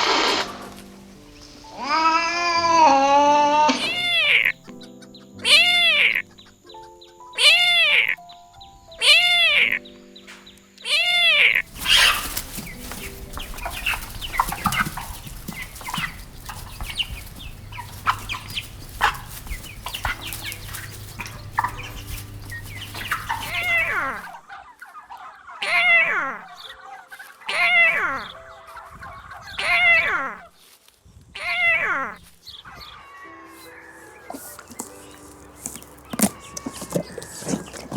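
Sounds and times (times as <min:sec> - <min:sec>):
scratchy noise: 0:00.0 - 0:00.9
soft background music: 0:00.0 - 0:37.9
kitten meowing: 0:01.8 - 0:04.6, 0:05.4 - 0:06.2, 0:07.4 - 0:08.2, 0:09.0 - 0:09.8, 0:10.8 - 0:11.6, 0:25.6 - 0:26.4, 0:27.5 - 0:28.2, 0:29.6 - 0:30.4, 0:31.4 - 0:32.2.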